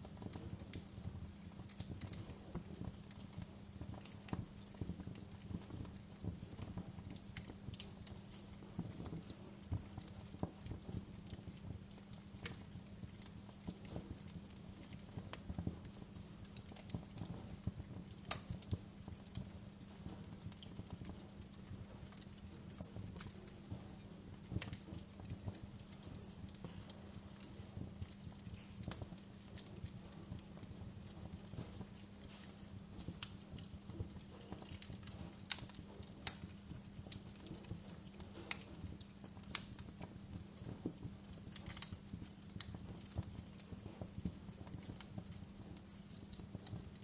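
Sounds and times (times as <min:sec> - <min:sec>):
wood fire crackling: 0:00.0 - 0:47.0.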